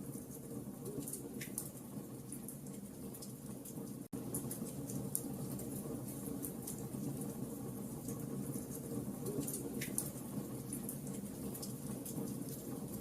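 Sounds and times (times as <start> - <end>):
low rumble of flames: 0.0 - 13.0.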